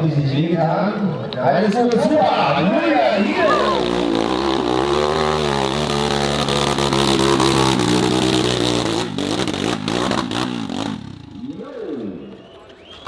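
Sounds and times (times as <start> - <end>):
dirt bike engine revving: 2.6 - 12.3.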